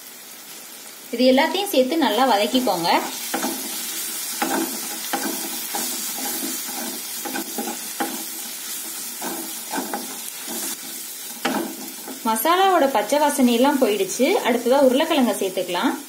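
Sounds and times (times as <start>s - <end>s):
masala sizzling in oil: 0.0s - 16.0s
spatula scraping wok: 2.5s - 12.3s.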